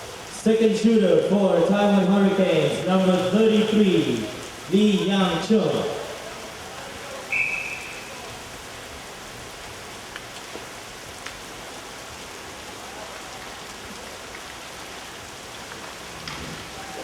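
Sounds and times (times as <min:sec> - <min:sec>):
arena background hiss: 0:00.0 - 0:17.0
shrill referee whistle: 0:07.3 - 0:08.3.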